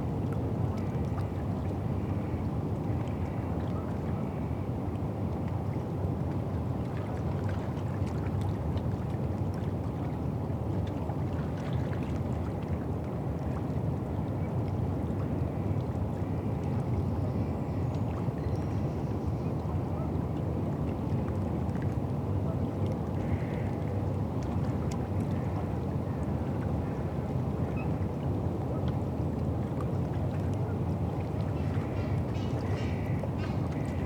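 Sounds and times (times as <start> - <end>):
low riverside rumble: 19.1 - 34.0.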